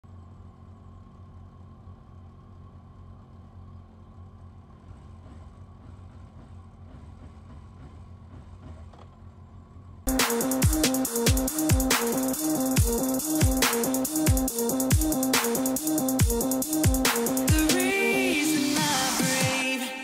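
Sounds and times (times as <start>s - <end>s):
motorcycle engines idling: 0.0s - 20.0s
electronic music with heavy beat: 10.1s - 20.0s.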